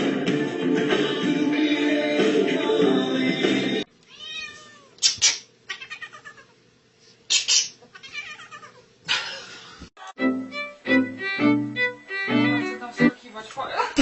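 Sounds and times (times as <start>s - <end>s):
cat meowing: 4.1s - 5.0s, 5.7s - 6.6s, 7.9s - 8.8s.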